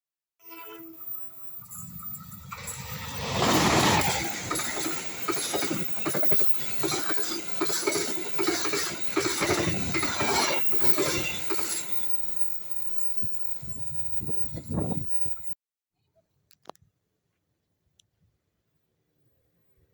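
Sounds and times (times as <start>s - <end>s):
train passing at speed: 0.5s - 15.6s
train wheels clickety-clack: 1.8s - 15.2s.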